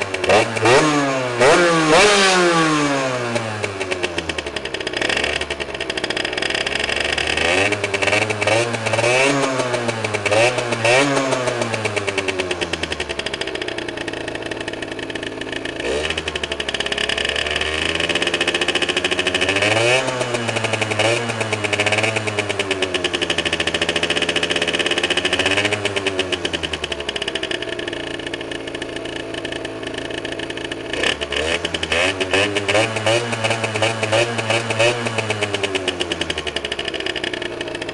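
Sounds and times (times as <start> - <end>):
two-stroke engine revving: 0.0 - 37.9.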